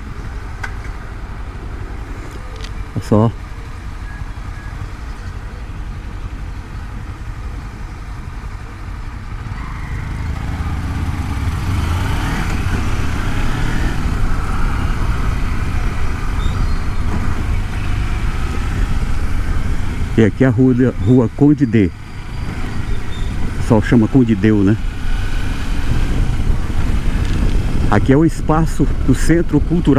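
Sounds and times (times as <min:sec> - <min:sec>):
motorcycle engine running: 0:00.0 - 0:29.9
wind noise on helmet microphone: 0:10.9 - 0:29.9.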